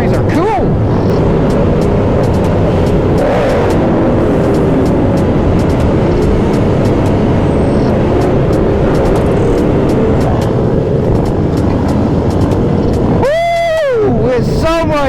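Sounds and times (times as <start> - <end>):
motorcycle engine running: 0.0 - 15.0
other motorcycles: 0.0 - 15.0
wind noise on microphone: 0.0 - 15.0.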